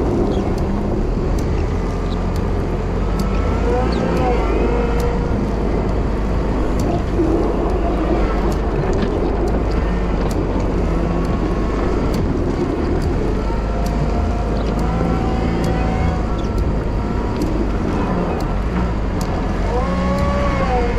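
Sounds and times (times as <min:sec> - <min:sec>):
light ticks: 0:00.0 - 0:20.9
wheel loader engine running: 0:00.0 - 0:20.9.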